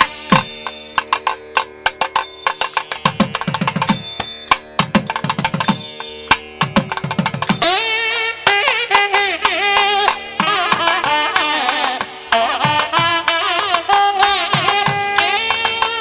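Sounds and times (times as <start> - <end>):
hand drums playing: 0.0 - 16.0
wavering melody: 0.0 - 16.0.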